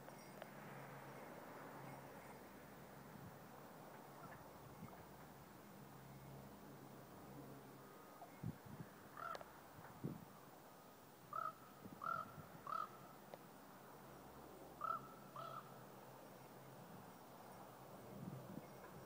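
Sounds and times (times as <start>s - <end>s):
bird calling: 9.2s - 9.5s, 11.3s - 13.1s, 14.8s - 15.8s.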